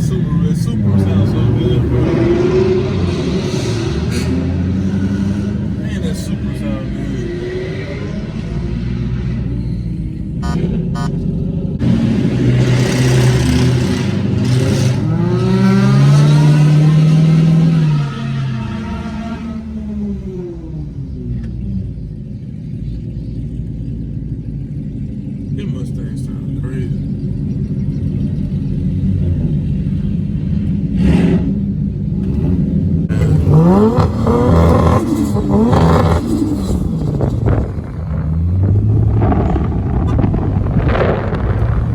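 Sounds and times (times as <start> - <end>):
car engine revving hard: 0.0 - 9.6, 11.8 - 20.7, 30.9 - 41.9.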